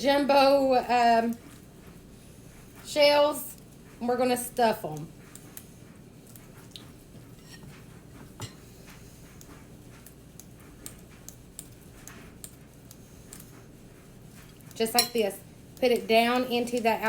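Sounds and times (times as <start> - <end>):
low background hum: 0.0 - 17.0
light clicks and taps: 4.9 - 6.9, 8.4 - 13.7.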